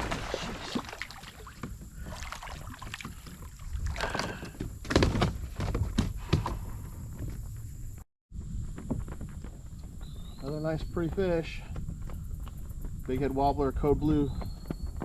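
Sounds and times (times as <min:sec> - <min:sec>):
knocks and bumps in kayak: 0:00.0 - 0:08.0.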